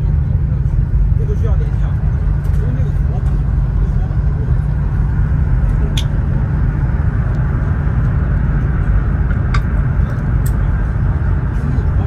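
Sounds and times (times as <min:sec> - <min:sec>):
train cabin rumble: 0:00.0 - 0:12.0.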